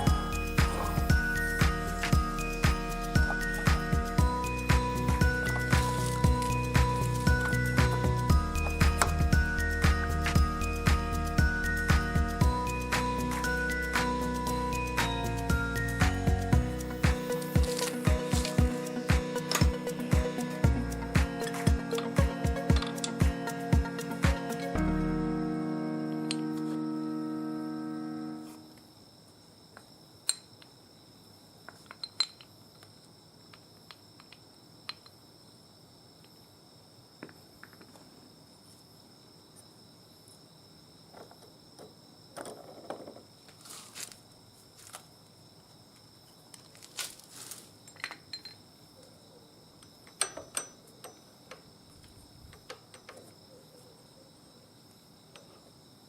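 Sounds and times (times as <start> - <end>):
crickets chirring: 0.0 - 56.0
metallic clinks of tools: 47.9 - 48.6, 50.1 - 51.6.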